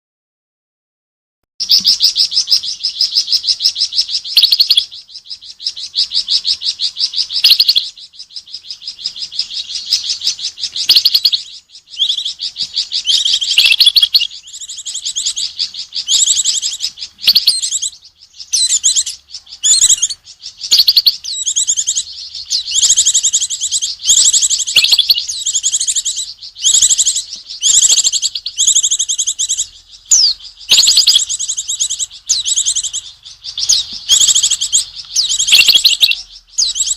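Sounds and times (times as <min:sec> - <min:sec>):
songbird buzzy chattering trills: 0:01.6 - 0:36.9.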